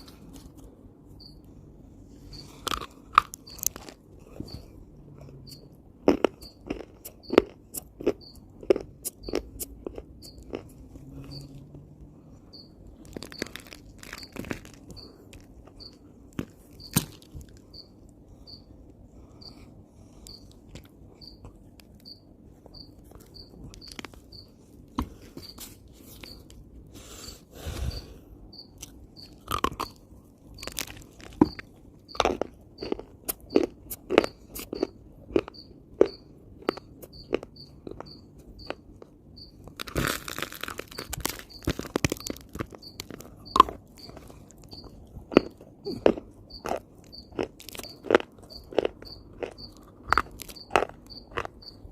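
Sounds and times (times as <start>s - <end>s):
person chewing dry earth: 0.0s - 1.3s, 2.1s - 51.9s
cricket chirping: 1.2s - 1.4s, 2.2s - 2.6s, 12.3s - 16.1s, 16.8s - 20.6s, 21.2s - 21.4s, 22.0s - 24.6s, 25.2s - 26.5s, 27.1s - 51.9s.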